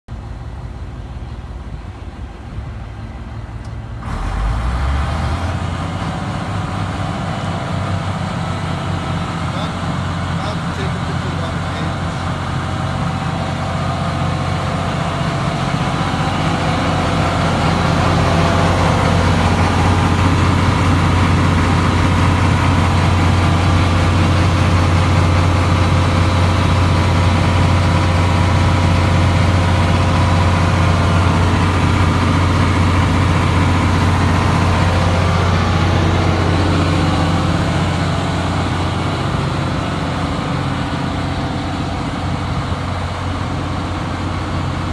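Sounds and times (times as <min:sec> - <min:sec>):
diesel generator engine humming: 0:00.1 - 0:44.9.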